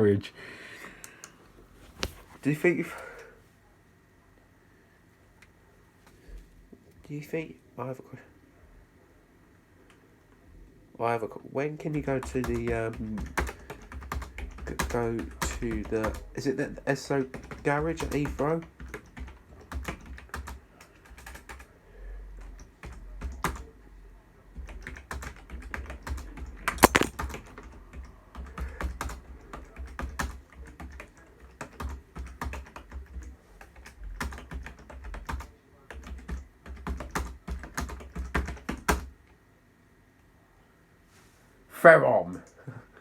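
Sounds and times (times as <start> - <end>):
keyboard key clicks: 26.8 - 27.1.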